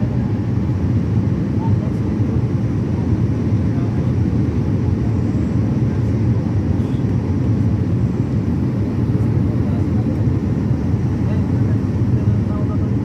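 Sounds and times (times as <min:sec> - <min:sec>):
airliner cabin drone: 0:00.0 - 0:13.0.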